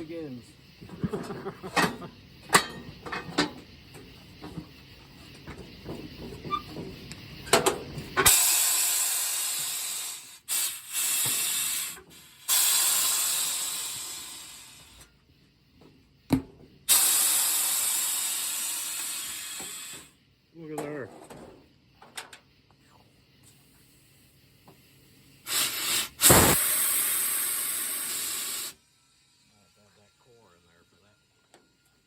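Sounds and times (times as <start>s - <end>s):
compressed air hissing into tire: 0.0s - 20.5s, 21.6s - 32.0s
small clicks and clanks: 20.8s - 22.5s.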